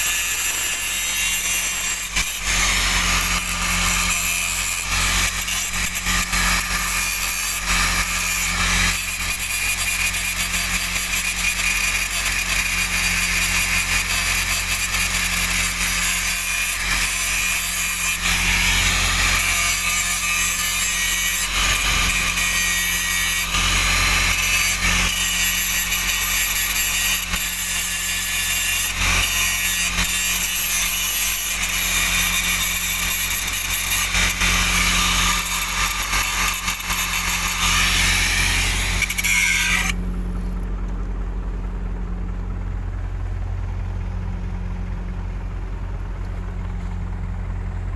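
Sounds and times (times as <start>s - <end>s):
angle grinder grinding metal: 0.0s - 40.0s
steady low hum: 34.3s - 47.9s.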